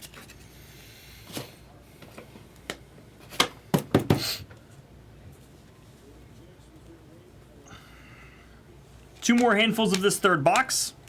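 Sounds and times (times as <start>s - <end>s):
cards rustling: 9.1s - 10.9s.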